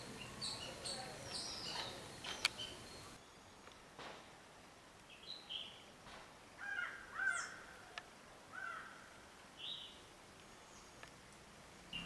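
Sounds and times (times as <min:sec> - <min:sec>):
birds calling: 0:00.0 - 0:04.0, 0:06.6 - 0:11.2.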